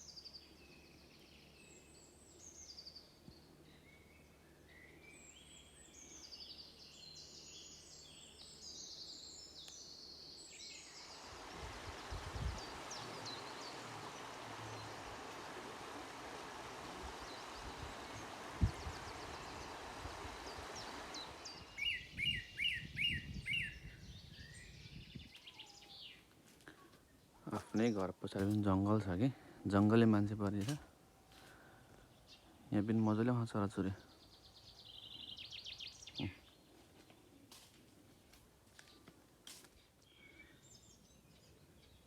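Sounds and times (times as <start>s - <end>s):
songbirds singing: 0.0s - 42.0s
steady rushing noise: 10.8s - 21.9s.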